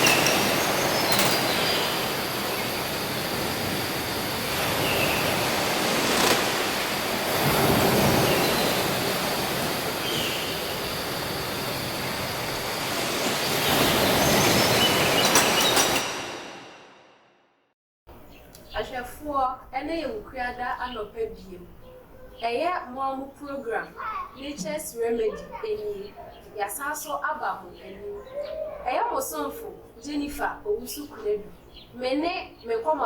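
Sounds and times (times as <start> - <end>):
steady rushing noise: 0.0 - 16.7.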